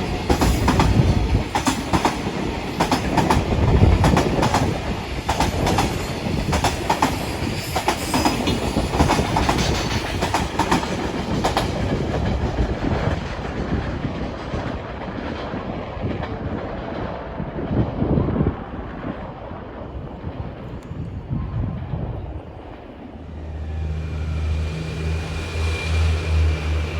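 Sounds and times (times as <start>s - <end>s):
train wheels clattering: 0.0s - 17.3s
low train rumble: 0.0s - 26.9s.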